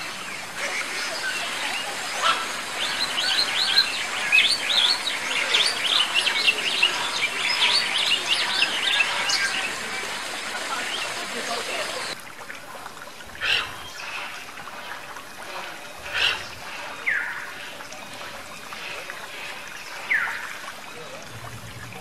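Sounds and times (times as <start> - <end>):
birds chirping: 0.0 - 12.2, 13.2 - 22.0.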